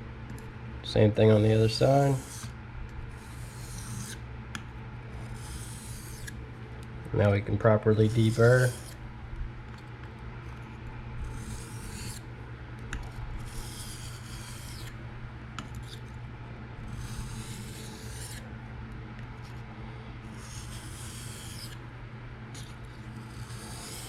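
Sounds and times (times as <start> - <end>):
steady low hum: 0.0 - 24.0
knife scraping on sharpening stone: 3.2 - 4.2, 5.3 - 6.3, 8.2 - 9.0, 11.3 - 12.2, 17.0 - 18.4, 23.4 - 24.0.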